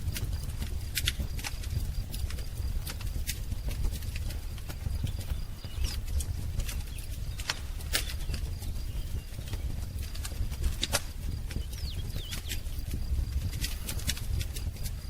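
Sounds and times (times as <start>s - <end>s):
wood fire crackling: 0.0s - 15.0s
faint bird chirps: 11.5s - 12.8s.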